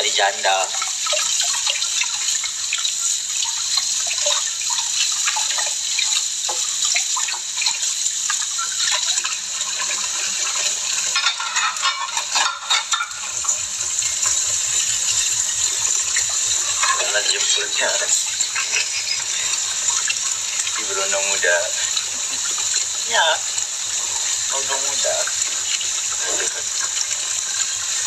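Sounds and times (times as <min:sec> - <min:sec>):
tap water running into sink: 0:00.0 - 0:28.0
clinks and knocks: 0:11.1 - 0:13.2.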